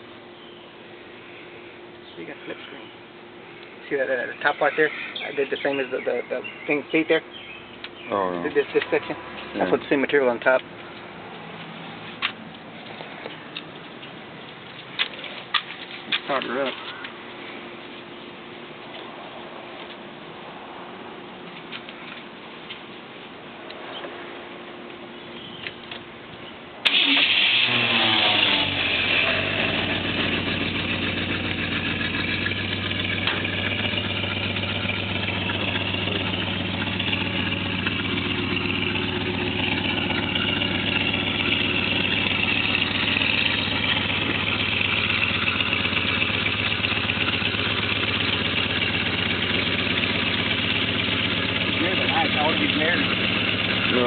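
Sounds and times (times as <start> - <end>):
pickup truck engine starting and idling: 26.8 - 54.0.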